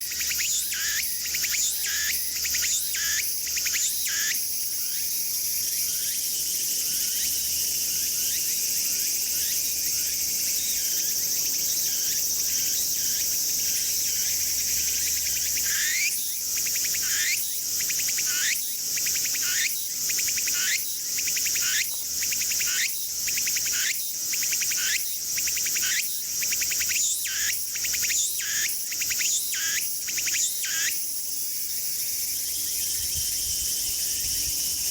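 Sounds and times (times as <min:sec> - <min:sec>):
cicada singing: 0:00.0 - 0:34.9
high insect drone: 0:00.0 - 0:34.9.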